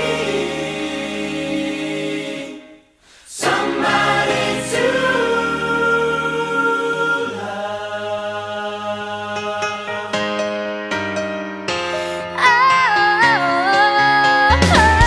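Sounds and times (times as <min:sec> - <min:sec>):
choir singing in harmony: 0:00.0 - 0:10.7.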